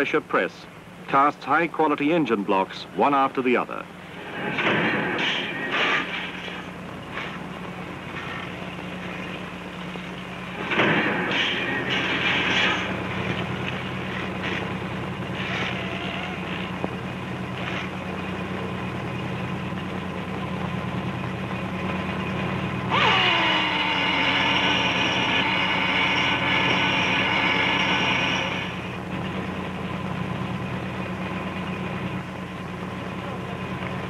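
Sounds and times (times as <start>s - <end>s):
factory machinery hum: 0.0s - 34.0s
machine whine falling in pitch: 21.0s - 32.2s.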